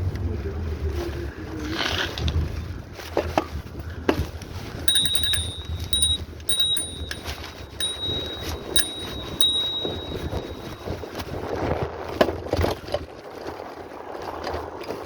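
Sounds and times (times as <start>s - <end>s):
bicycle bell ringing: 4.9s - 11.2s.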